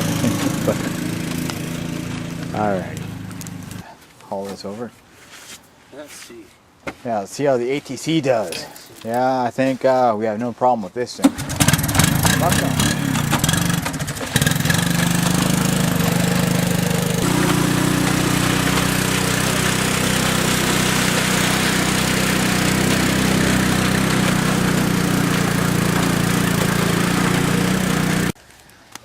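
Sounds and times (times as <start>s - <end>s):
three-wheeler engine running: 0.0s - 3.8s, 11.3s - 28.4s.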